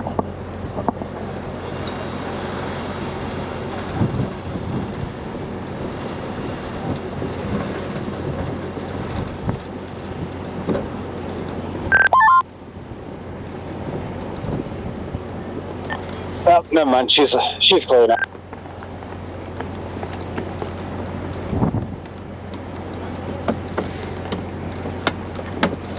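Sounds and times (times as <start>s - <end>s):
diesel truck engine running: 0.0s - 25.9s
two-pitch electronic tone: 11.9s - 12.4s.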